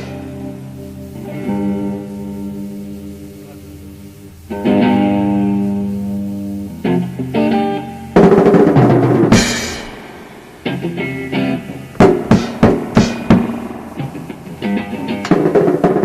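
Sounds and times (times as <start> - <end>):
guitar chords ringing: 0.0 - 16.0
drum kit hits: 8.2 - 10.9, 11.9 - 14.4, 15.2 - 16.0
loud cymbal crash: 8.2 - 10.9, 12.0 - 14.2.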